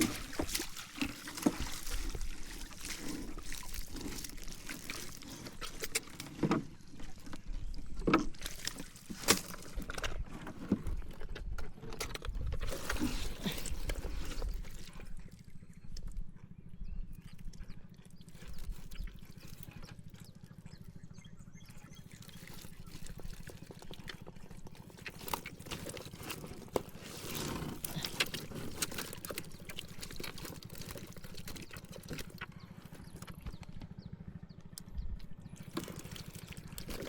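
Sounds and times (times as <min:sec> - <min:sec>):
water trickling and splashing: 0:00.0 - 0:10.3, 0:21.9 - 0:33.6, 0:35.4 - 0:37.0
steady low hum: 0:00.0 - 0:37.0.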